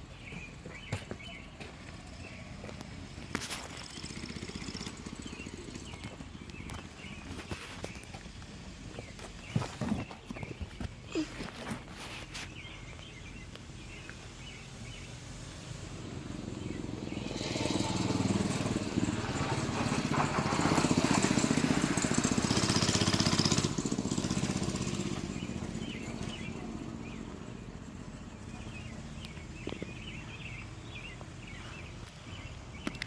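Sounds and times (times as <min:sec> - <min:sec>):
mini bike engine running: 0:02.0 - 0:11.9, 0:16.0 - 0:31.6.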